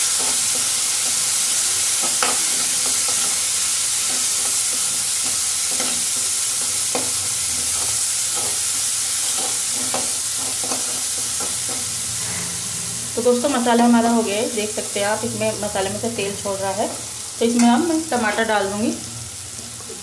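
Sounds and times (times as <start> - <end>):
paste sizzling in hot oil: 0.0 - 20.0
metal spatula scraping: 4.1 - 13.9.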